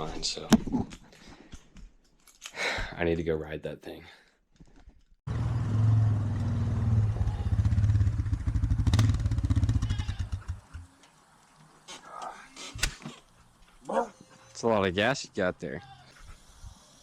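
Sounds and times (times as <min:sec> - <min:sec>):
motorcycle engine running: 0:05.3 - 0:10.9.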